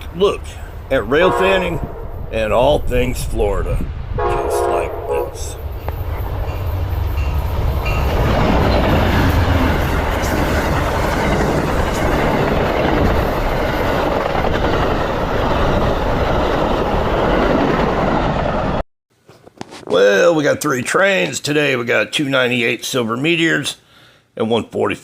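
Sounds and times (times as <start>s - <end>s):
rail car clatter: 0.0s - 18.2s
train wheels rumbling on rails: 0.0s - 18.8s.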